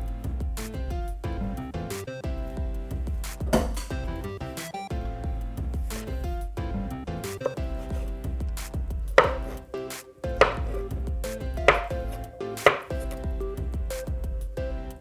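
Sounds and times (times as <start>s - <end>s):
background music: 0.0s - 15.0s
knife chopping on cutting board: 9.2s - 9.6s, 10.4s - 10.8s, 11.7s - 13.2s.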